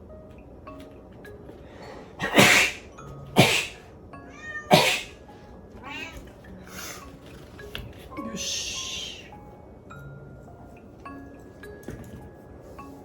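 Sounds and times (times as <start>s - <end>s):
cat hissing: 2.2s - 3.9s, 4.5s - 5.2s, 8.4s - 9.3s
cat wavering cry: 4.3s - 5.2s, 5.8s - 6.3s, 8.3s - 9.3s.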